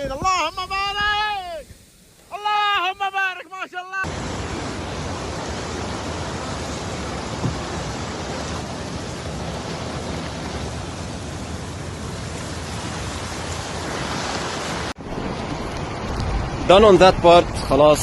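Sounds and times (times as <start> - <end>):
heavy rain rushing: 4.0 - 18.0.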